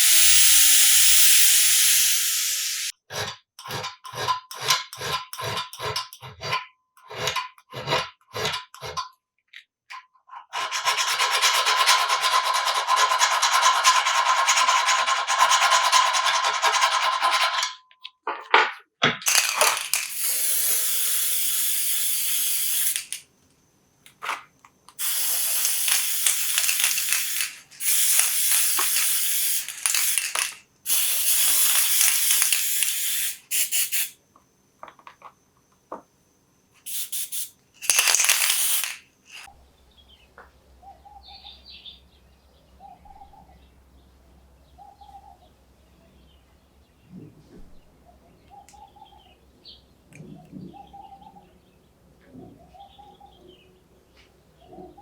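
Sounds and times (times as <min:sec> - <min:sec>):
spray can hissing: 0:00.0 - 0:02.9, 0:19.2 - 0:23.2, 0:25.0 - 0:34.2, 0:36.9 - 0:39.5
faint bird chirping: 0:39.6 - 0:55.0.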